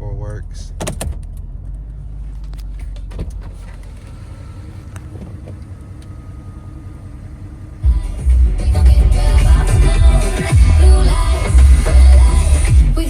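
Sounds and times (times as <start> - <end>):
diesel engine idling: 0.0 - 13.0
light clicks: 3.8 - 6.2.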